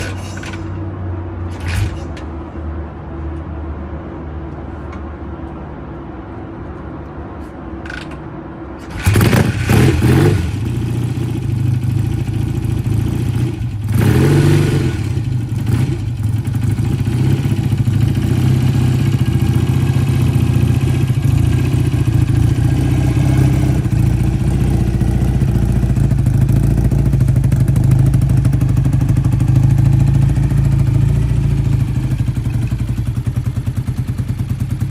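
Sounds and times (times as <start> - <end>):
motorcycle engine starting and idling: 0.0 - 2.4, 7.8 - 34.9
engine revving: 8.8 - 32.4.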